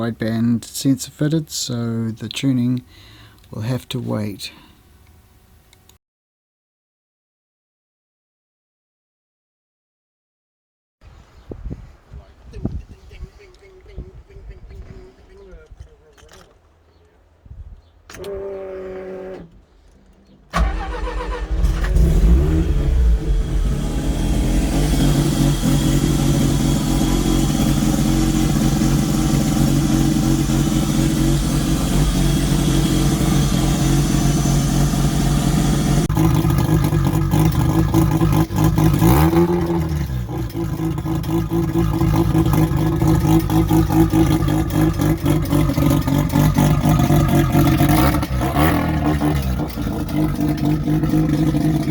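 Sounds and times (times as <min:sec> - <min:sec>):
rotary engine cranking: 0:18.1 - 0:51.9
rotary engine running: 0:20.6 - 0:51.9.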